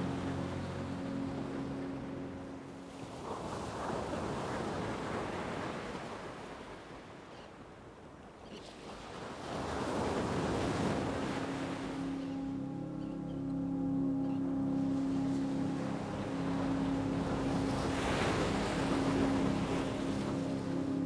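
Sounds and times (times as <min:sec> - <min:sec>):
ocean waves washing in: 0:09.3 - 0:21.0.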